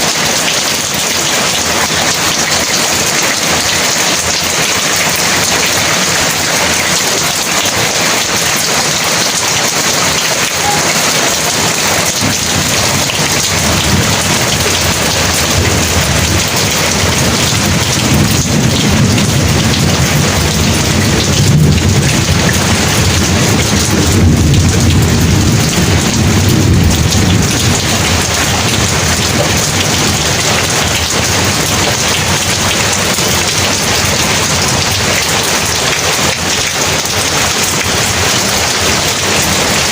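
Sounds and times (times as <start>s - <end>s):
heavy rain pouring: 0.0s - 39.9s
low rumble of thunder: 11.6s - 39.8s.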